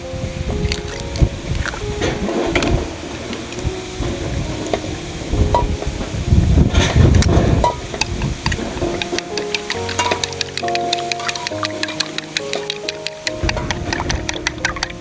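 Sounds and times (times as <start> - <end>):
utensil scraping and clicking: 6.9 - 15.0.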